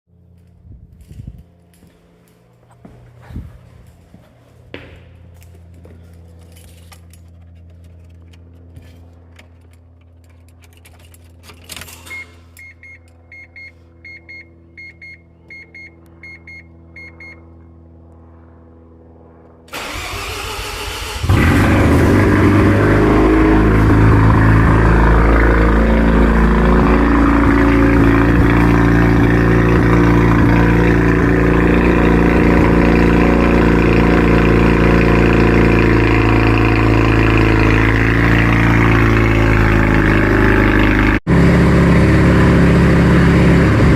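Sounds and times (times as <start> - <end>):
car engine idling loudly: 21.0 - 43.9.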